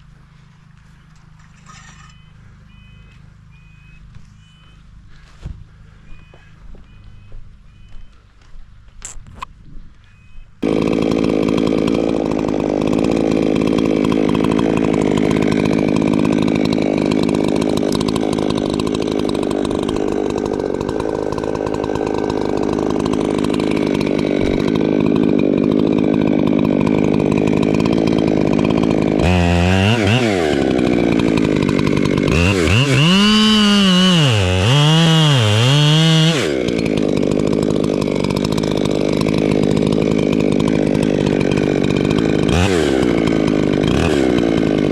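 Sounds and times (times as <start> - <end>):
chainsaw engine revving: 10.6 - 44.9.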